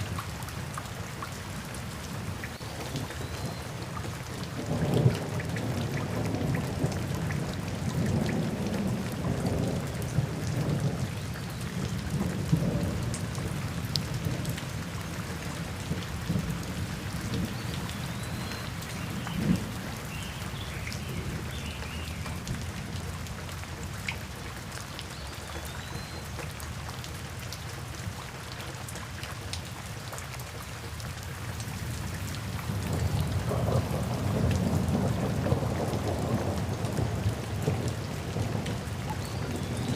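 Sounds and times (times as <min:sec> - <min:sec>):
steady rain falling: 0:00.0 - 0:39.9
low rolling thunder: 0:04.5 - 0:11.1, 0:32.6 - 0:39.9.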